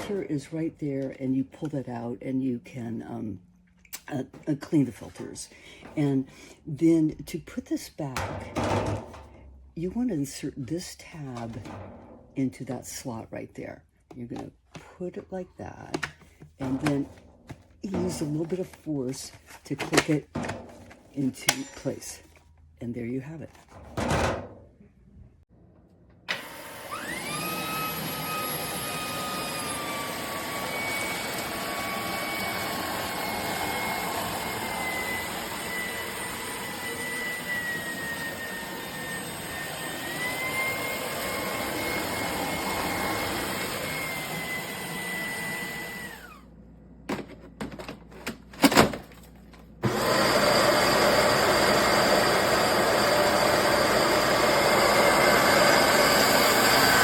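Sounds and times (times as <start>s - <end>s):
vacuum motor whine: 26.3s - 46.4s, 49.8s - 57.0s.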